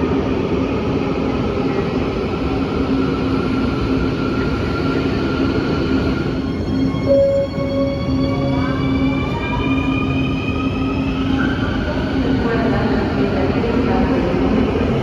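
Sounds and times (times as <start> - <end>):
metro train rumbling: 0.0 - 15.0
high whine: 7.0 - 10.3.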